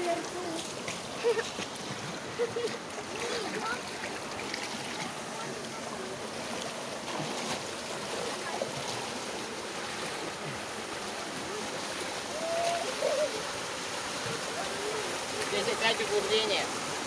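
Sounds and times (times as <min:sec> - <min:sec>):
stream running over rocks: 0:00.0 - 0:17.0.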